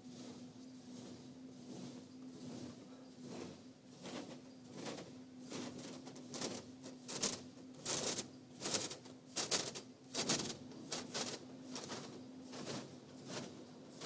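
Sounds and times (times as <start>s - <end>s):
car wash swishing and rattling: 0.0s - 14.0s.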